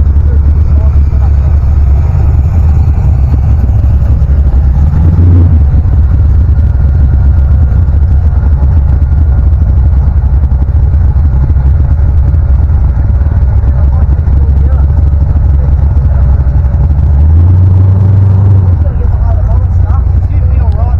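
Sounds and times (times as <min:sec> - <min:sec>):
car engine rumbling: 0:00.0 - 0:20.9.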